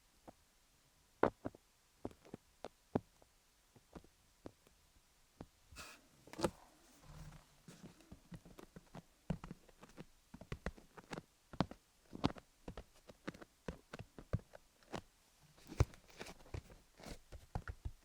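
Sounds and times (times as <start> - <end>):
soft rustle: 5.7 - 18.0
short scratch: 5.8 - 7.8.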